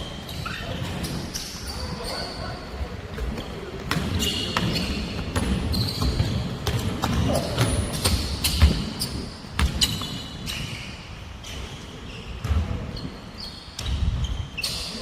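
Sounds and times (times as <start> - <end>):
sneakers squeaking on floor: 0.0 - 15.0
basketball bouncing: 3.2 - 10.5.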